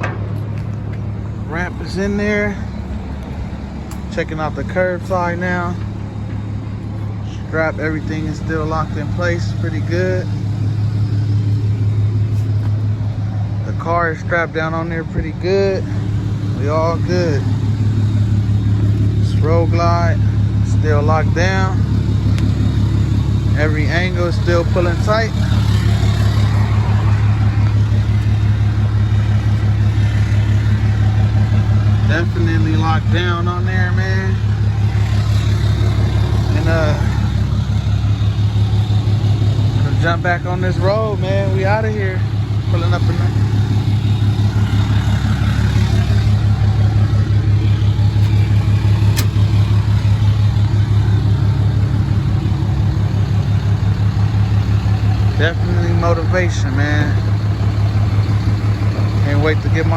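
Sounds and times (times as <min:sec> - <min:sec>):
pickup truck engine idling: 0:00.0 - 0:59.9
sharp click: 0:49.1 - 0:49.4.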